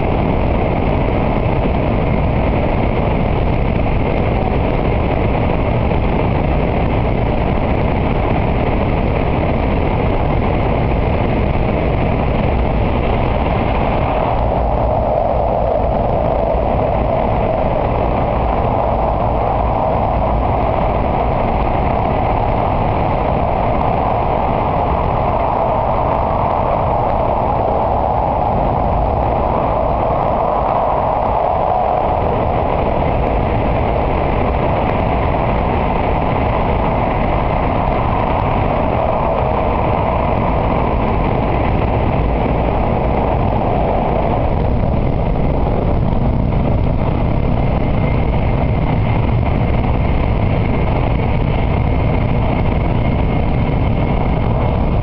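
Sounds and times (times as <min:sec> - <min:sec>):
low rushing noise: 0:00.0 - 0:55.0.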